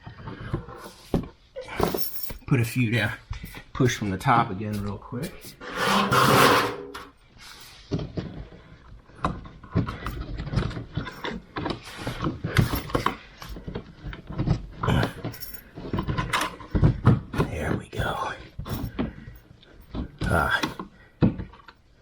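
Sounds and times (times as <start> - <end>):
chain rattling clicks and knocks: 0.2 - 2.8, 8.2 - 21.8
metal chain scraping in wall: 5.4 - 7.7, 9.6 - 17.2.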